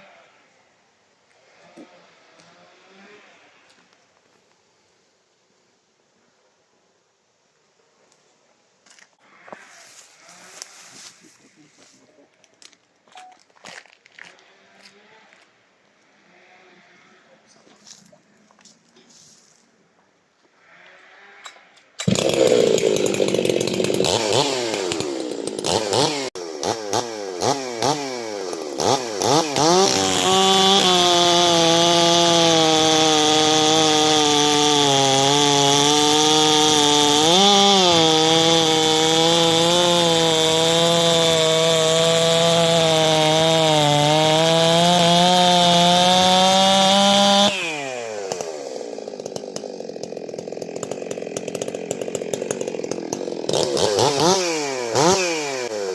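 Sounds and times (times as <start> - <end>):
chainsaw revving: 20.8 - 55.9.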